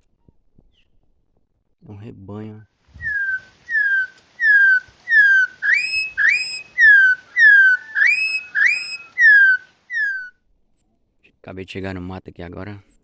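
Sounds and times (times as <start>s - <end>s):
songbird whistling: 3.0s - 10.4s.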